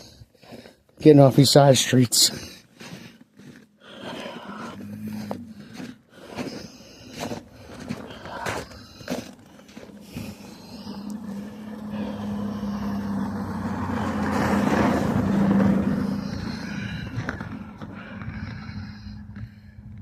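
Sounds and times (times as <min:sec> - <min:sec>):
vehicle passing by: 0:07.2 - 0:19.2.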